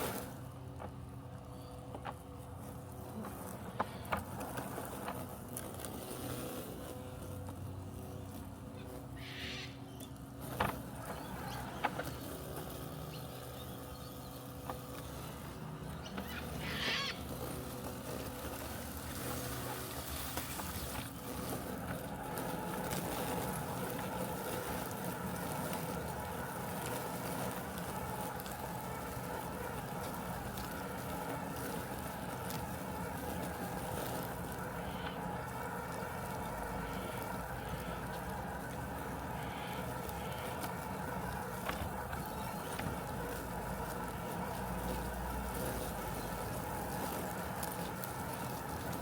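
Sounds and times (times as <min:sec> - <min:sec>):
robotic lawn mower humming: 0:00.0 - 0:49.0
short bird calls: 0:08.8 - 0:10.2, 0:15.8 - 0:17.4.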